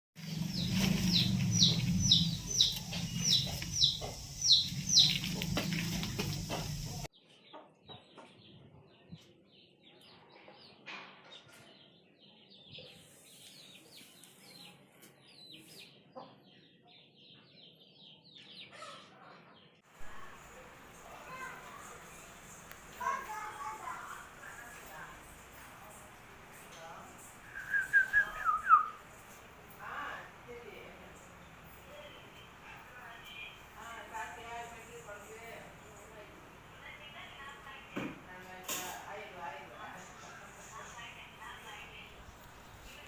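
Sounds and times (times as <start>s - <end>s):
chickens calling: 0.2s - 8.4s.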